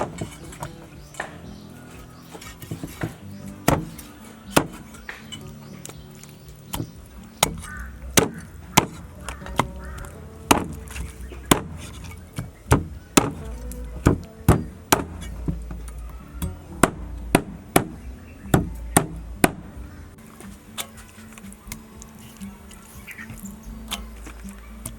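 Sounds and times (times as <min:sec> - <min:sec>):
background music: 0:00.0 - 0:24.9.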